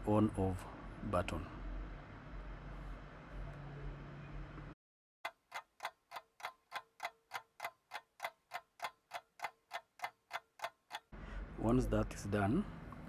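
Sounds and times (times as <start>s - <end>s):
clock ticking: 5.2s - 11.1s.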